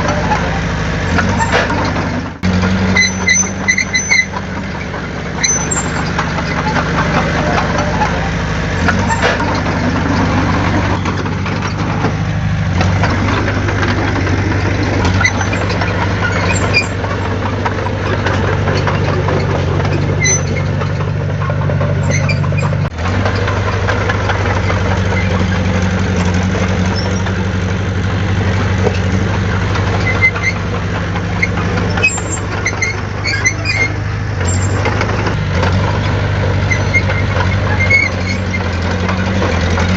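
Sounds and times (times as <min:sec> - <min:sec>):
heavy diesel engine running: 0:00.0 - 0:39.9
short high squeaks: 0:02.8 - 0:12.1, 0:12.8 - 0:22.9, 0:26.8 - 0:27.4, 0:29.8 - 0:30.7, 0:31.3 - 0:35.4, 0:36.6 - 0:38.9.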